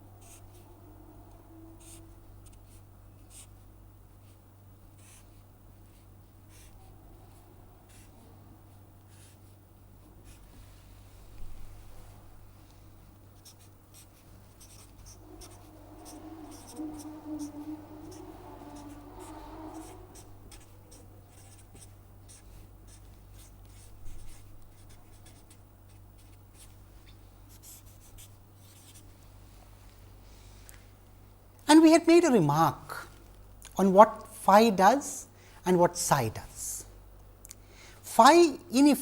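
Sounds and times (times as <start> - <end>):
low humming tone: 0.0 - 4.0, 6.2 - 25.2
low electrical hum: 0.0 - 39.0
pen scratching on paper: 0.2 - 0.6, 1.8 - 3.6, 4.2 - 8.2, 9.0 - 9.6, 13.4 - 29.1.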